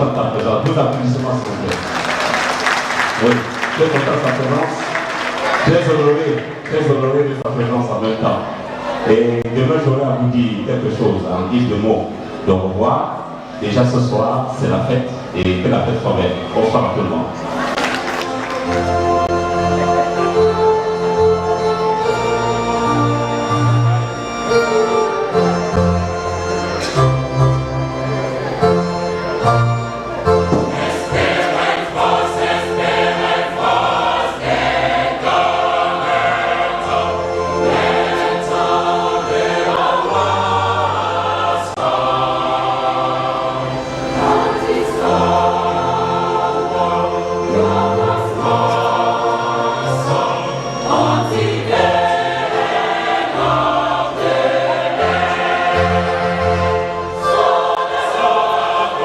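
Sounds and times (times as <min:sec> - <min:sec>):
choir singing a gospel hymn: 0:15.4 - 0:27.1, 0:29.4 - 0:59.0
instrumental accompaniment with bass: 0:17.5 - 0:59.0.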